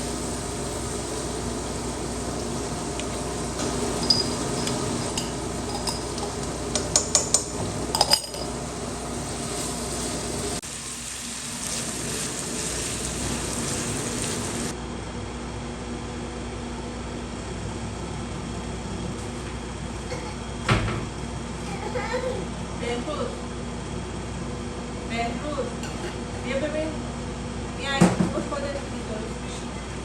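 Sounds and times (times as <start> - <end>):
food sizzling in a pan: 0.0 - 14.8
utensil stirring food: 0.8 - 14.7
metal clinking on a pan: 4.0 - 8.6.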